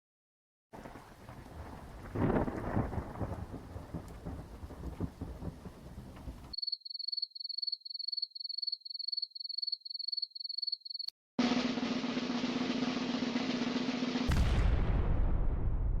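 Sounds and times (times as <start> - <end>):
rain: 0.8 - 6.6
rumbling thunder: 0.8 - 6.6, 12.4 - 16.0.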